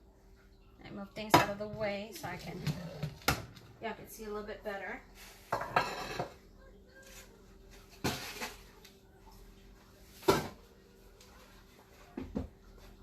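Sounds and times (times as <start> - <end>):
kitchen items scraping on counter: 5.1 - 6.4.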